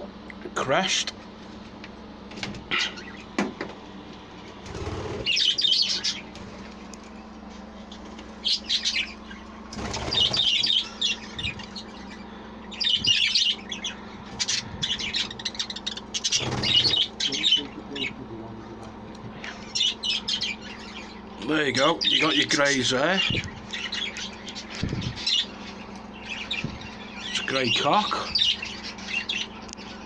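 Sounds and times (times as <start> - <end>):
wings fluttering: 1.4 - 12.1, 14.0 - 17.8, 23.2 - 27.0
budgerigars chattering and chirping: 4.7 - 6.4, 7.9 - 30.0.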